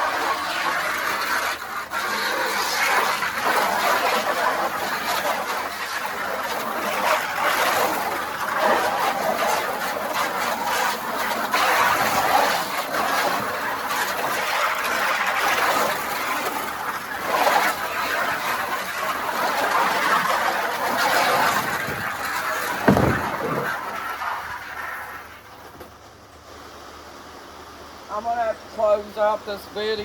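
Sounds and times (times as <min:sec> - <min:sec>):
thump: 0:21.5 - 0:24.6.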